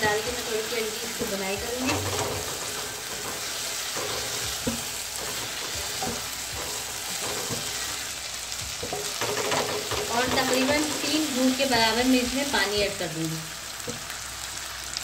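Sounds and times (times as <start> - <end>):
chillies sizzling in oil: 0.0 - 15.0
spatula scraping a pan: 0.2 - 11.4.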